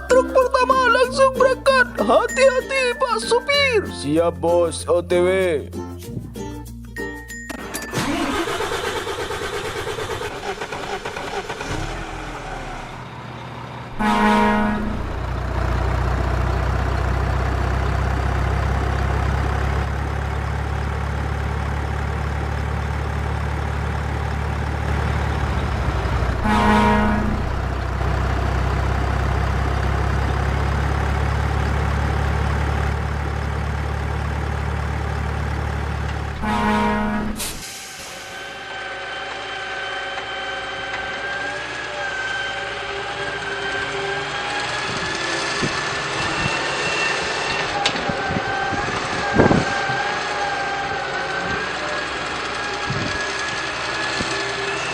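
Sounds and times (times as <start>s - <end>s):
truck engine rumbling: 0.0s - 5.4s, 6.0s - 54.9s
truck horn honking: 13.9s - 17.3s, 25.1s - 28.4s, 36.3s - 37.8s.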